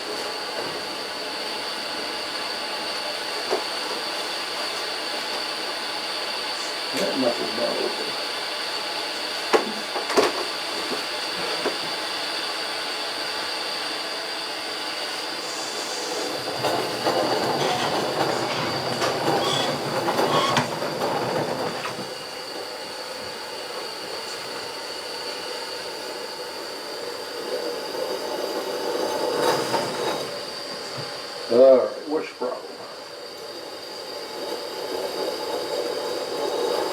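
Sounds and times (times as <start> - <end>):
steam hiss: 13.4 - 20.8
metallic running noise: 14.9 - 36.9.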